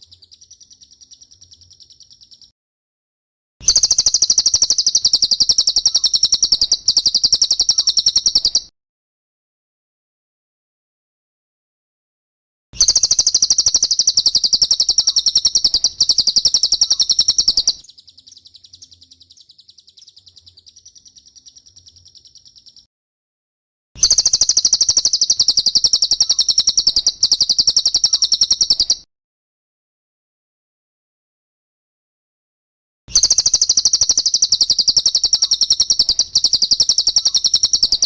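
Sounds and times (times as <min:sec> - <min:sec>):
bird trilling rapidly: 0:03.6 - 0:08.7, 0:12.8 - 0:22.9, 0:24.0 - 0:29.0, 0:33.1 - 0:38.0.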